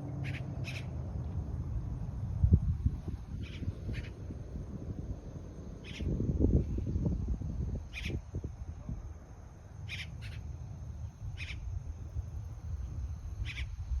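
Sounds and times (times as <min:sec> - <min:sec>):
steady low rumble: 0:00.0 - 0:14.0
short bird calls: 0:00.2 - 0:00.9, 0:09.9 - 0:10.5, 0:11.4 - 0:11.6, 0:13.4 - 0:13.8.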